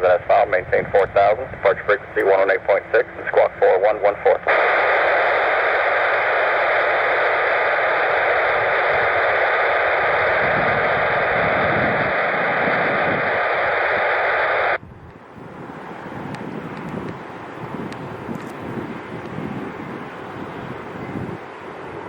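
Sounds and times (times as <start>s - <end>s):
radio static hiss: 0.0s - 14.8s
aircraft noise: 0.0s - 22.0s
faint wind: 0.0s - 22.0s.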